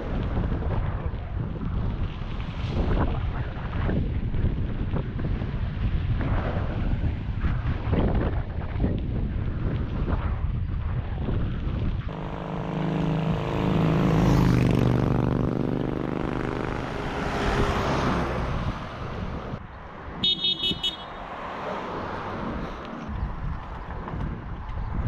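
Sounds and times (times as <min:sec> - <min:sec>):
wind buffeting microphone: 0:00.0 - 0:25.0
vehicle engine passing by: 0:12.1 - 0:19.6.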